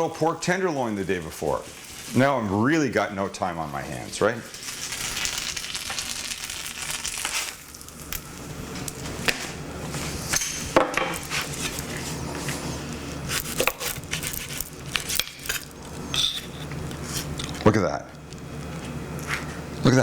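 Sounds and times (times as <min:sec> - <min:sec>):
frying sizzle: 0:00.8 - 0:13.4.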